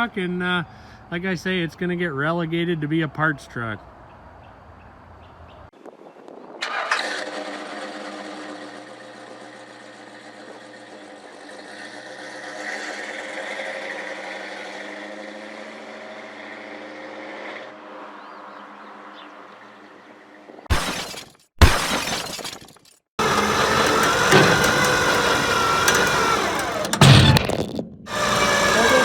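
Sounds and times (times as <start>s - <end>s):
vehicle engine starting and running: 23.2s - 29.0s.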